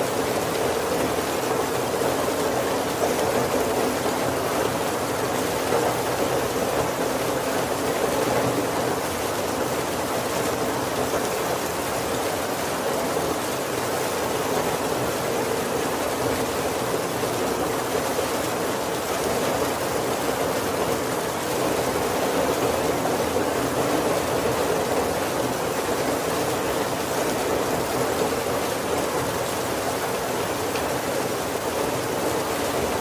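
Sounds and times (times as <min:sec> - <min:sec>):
heavy rain on roof and windows: 0:00.0 - 0:33.0.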